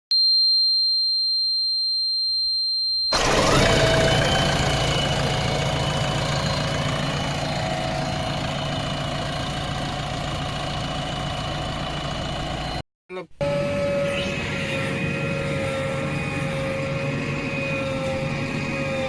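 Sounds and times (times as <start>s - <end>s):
heavy diesel engine running: 3.2s - 12.8s, 14.2s - 19.0s
thin steady whine: 13.4s - 19.0s.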